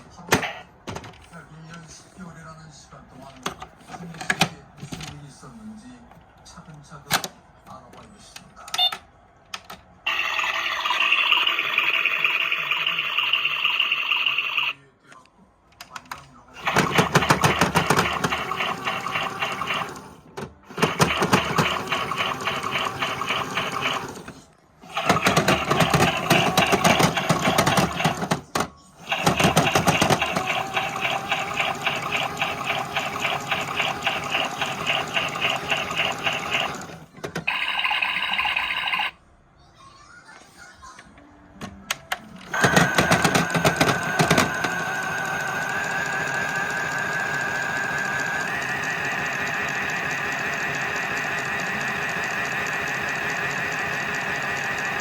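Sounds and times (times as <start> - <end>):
washing machine rattling clatter: 16.6 - 20.0, 20.7 - 24.2, 24.9 - 36.9
motor whine: 42.5 - 55.0.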